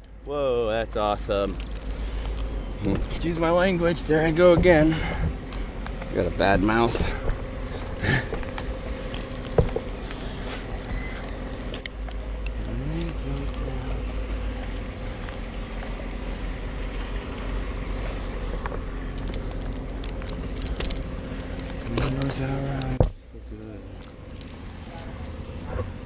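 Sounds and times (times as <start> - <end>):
engine humming: 0.0 - 26.0
small clicks and knocks: 7.8 - 13.7, 18.5 - 23.2.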